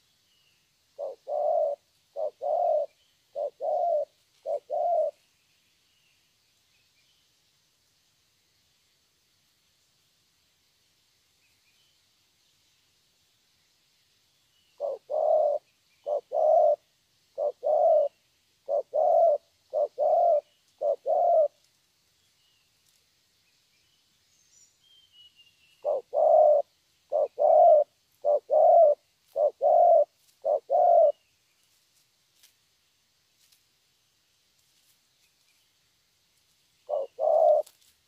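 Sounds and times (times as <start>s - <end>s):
faint small-bird chirps: 0.0s - 32.6s, 34.5s - 38.0s
dove cooing: 1.0s - 5.2s, 14.8s - 21.6s, 25.8s - 31.2s, 36.8s - 37.8s.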